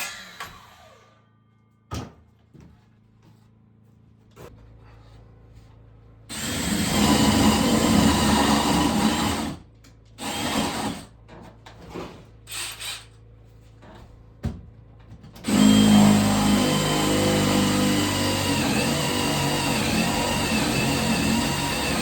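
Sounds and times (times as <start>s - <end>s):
power drill running: 6.3s - 9.6s, 10.2s - 11.1s, 15.4s - 22.0s.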